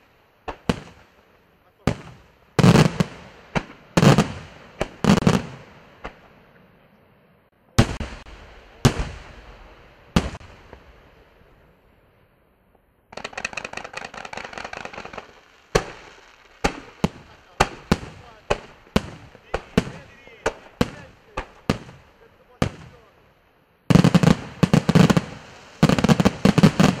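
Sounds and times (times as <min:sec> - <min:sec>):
rapid firework crackling: 0:00.0 - 0:06.3, 0:13.1 - 0:23.2, 0:23.8 - 0:27.0
firework shells bursting: 0:13.1 - 0:23.2, 0:23.9 - 0:27.0.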